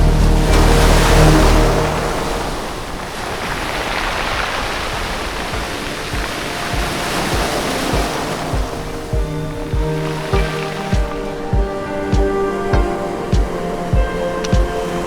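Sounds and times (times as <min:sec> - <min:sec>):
background music with low beat: 0:00.0 - 0:02.5, 0:05.6 - 0:15.0
sea surf washing on beach: 0:00.0 - 0:15.0.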